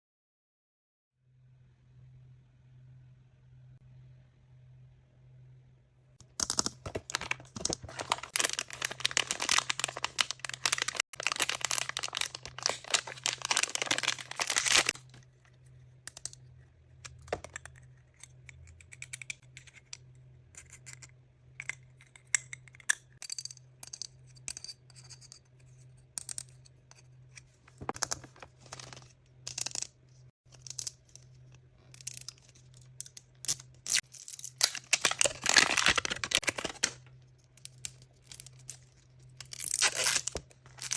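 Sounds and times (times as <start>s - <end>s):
packaging crackling: 6.4s - 15.2s, 33.9s - 37.1s.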